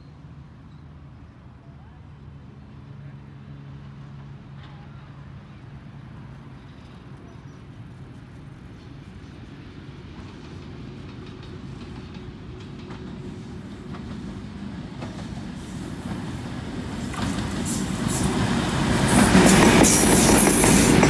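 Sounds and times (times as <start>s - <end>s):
diesel locomotives running: 0.0s - 21.0s
wheels clicking over rail joints: 10.1s - 21.0s.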